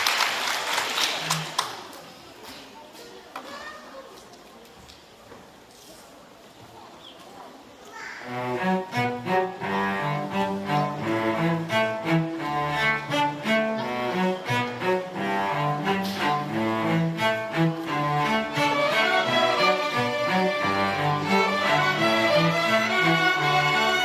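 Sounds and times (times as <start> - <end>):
school orchestra playing: 8.2 - 24.0.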